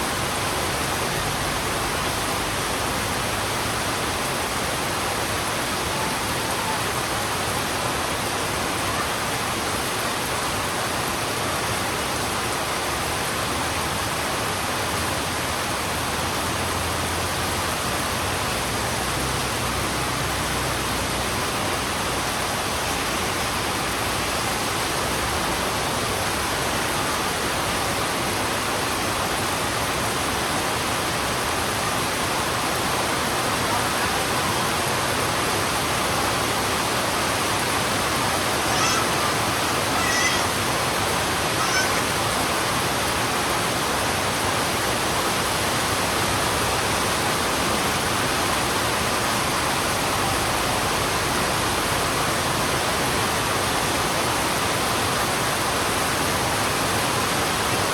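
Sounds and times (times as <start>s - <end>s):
heavy rain: 0.0s - 57.9s
high-pitched animal calls: 38.7s - 40.6s, 41.6s - 42.2s.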